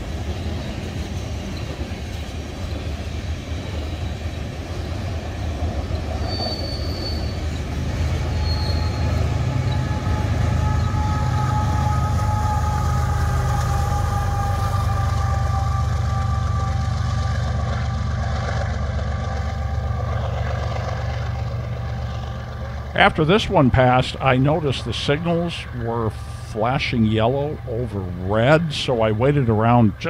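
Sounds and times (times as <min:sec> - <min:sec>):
diesel locomotive engines droning: 0:00.0 - 0:30.0
freight cars rumbling: 0:00.0 - 0:30.0
high wheel squeals: 0:00.2 - 0:18.6
faint falling whine: 0:08.3 - 0:30.0.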